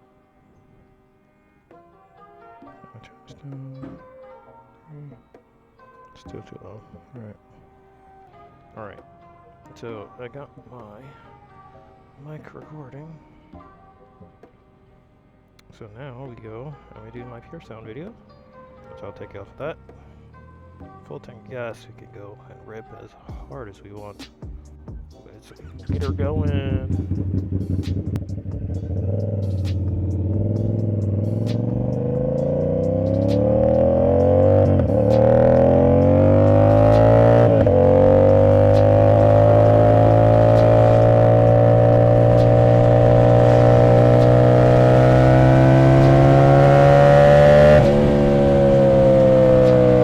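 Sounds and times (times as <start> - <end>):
motorcycle engine revving: 25.7 - 50.0.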